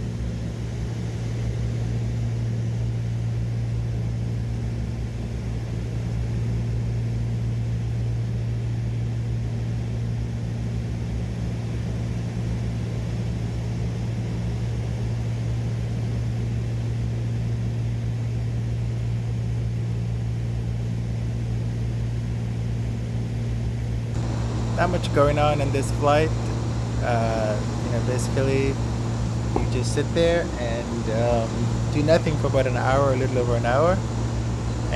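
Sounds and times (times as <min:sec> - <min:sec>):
twin piston engine cabin drone: 0:00.0 - 0:34.9
propeller noise: 0:23.4 - 0:34.9.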